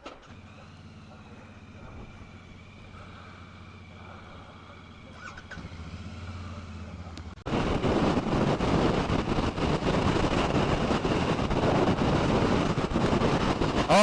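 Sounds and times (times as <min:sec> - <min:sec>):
motorcycle engine running: 0:00.3 - 0:14.0
wind rush: 0:07.5 - 0:14.0.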